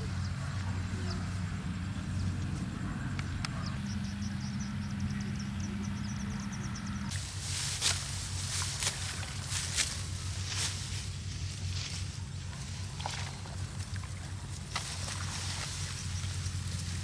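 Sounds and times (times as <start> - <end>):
small engine humming: 0.0 - 17.0.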